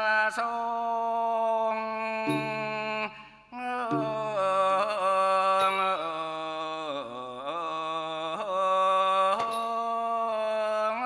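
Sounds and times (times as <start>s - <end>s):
person singing melismatic line: 2.3s - 4.9s.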